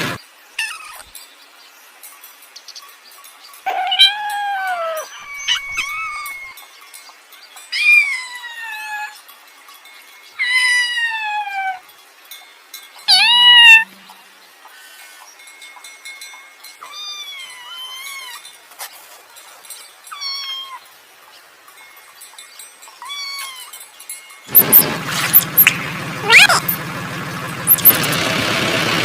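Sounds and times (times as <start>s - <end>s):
kitten mewing: 25.6s - 26.8s.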